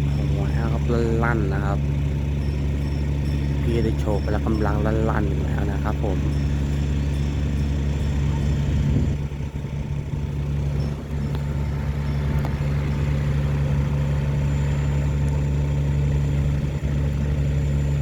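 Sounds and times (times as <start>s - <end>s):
diesel engine drone: 0.0s - 18.0s.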